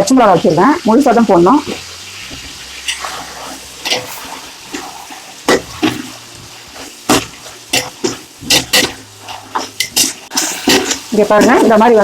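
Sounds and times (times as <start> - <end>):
masala sizzling: 0.0 - 12.0
spoon scraping a cooking pot: 2.3 - 11.8.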